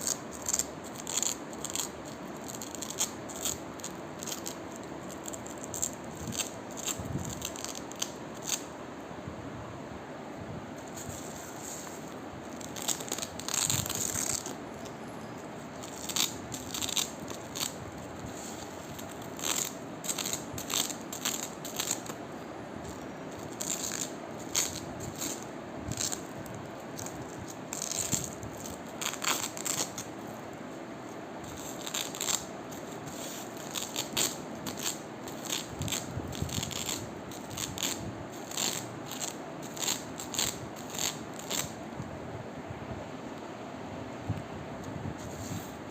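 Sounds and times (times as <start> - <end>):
velcro ripping: 0.0 - 8.7, 10.9 - 14.6, 15.7 - 22.2, 22.8 - 30.1, 31.4 - 41.8.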